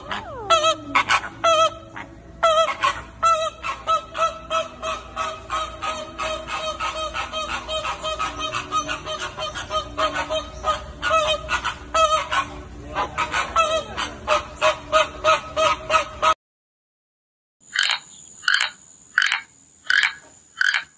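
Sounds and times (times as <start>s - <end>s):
flock of birds calling: 0.0s - 16.4s.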